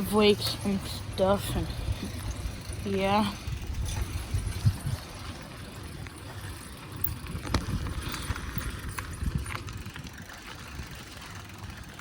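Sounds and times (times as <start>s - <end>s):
bicycle clicks and rattles: 0.0s - 12.0s
wind and road noise: 0.0s - 12.0s.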